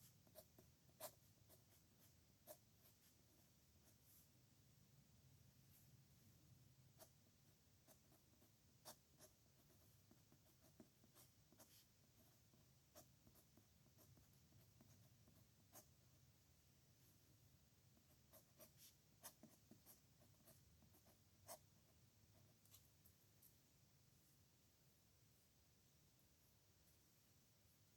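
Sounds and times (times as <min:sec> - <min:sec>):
pen scratching on paper: 0:00.0 - 0:04.2, 0:07.8 - 0:16.0, 0:18.0 - 0:22.8.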